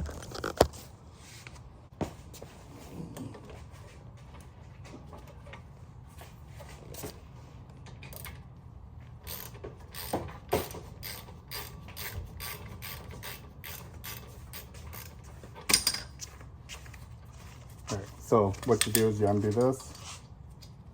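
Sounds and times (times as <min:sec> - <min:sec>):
ratchet wrench clicking: 0:09.2 - 0:15.2.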